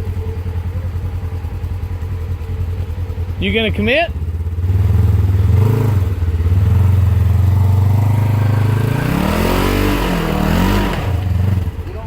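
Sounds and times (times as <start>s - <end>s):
off-road vehicle engine revving: 3.4s - 12.0s.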